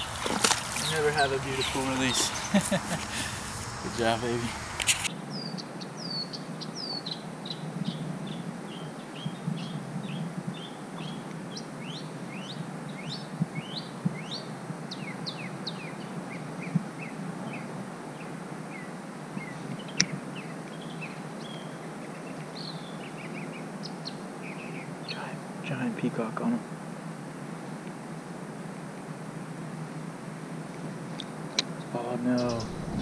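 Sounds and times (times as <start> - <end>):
low outdoor hum: 0.0 - 5.1, 32.0 - 33.0
bird chirping: 0.0 - 16.1, 32.2 - 33.0
sharp click: 4.7 - 5.1.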